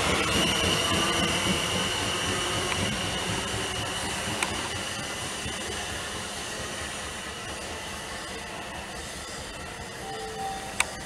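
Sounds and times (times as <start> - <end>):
electric train running: 0.0 - 11.0
thin high whine: 9.8 - 11.0.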